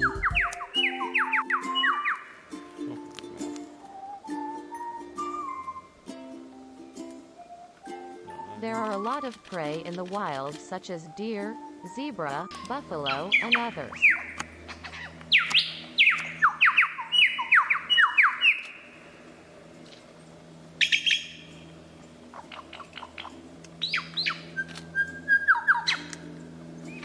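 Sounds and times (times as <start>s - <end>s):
bird whistling and chirping: 0.0s - 2.4s, 3.8s - 6.1s, 7.4s - 10.0s, 10.8s - 18.8s, 20.8s - 21.5s, 22.3s - 26.2s.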